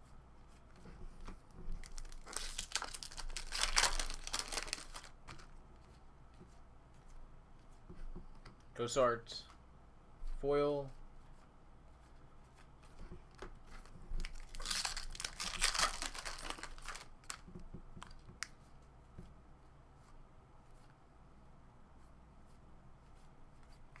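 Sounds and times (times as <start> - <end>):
foil wrapper tearing and crinkling: 1.8 - 5.2, 14.2 - 17.4.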